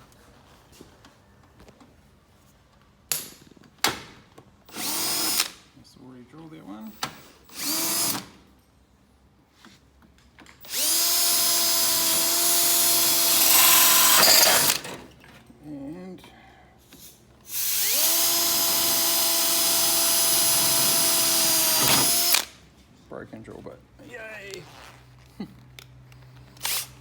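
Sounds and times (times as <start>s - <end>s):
electric drill boring through steel: 4.7s - 5.5s, 7.5s - 8.2s, 10.7s - 14.9s, 17.5s - 22.5s, 26.6s - 26.9s.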